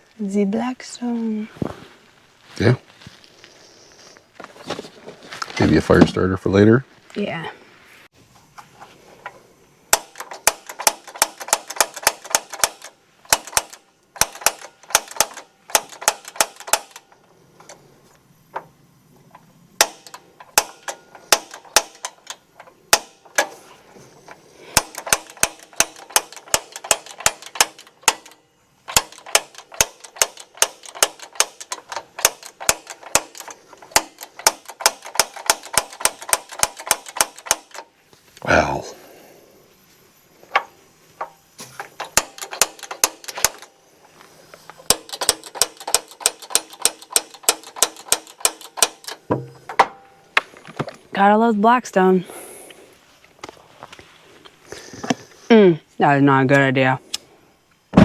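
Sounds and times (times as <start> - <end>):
spark igniter clicking rapidly: 9.9 - 17.0, 24.8 - 37.9, 44.8 - 49.2.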